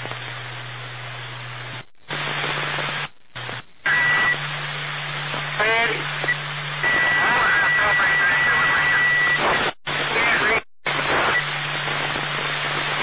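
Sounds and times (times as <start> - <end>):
constant low hum: 0.0 - 10.2
radio static: 0.0 - 13.0.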